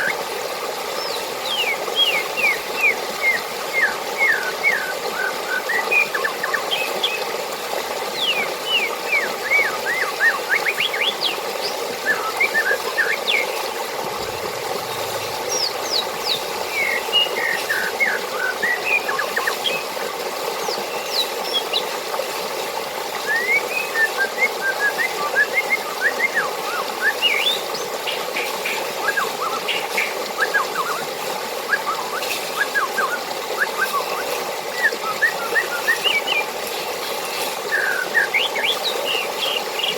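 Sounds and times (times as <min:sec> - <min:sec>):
rushing water: 0:00.0 - 0:39.9
small birds chirping: 0:10.2 - 0:19.9.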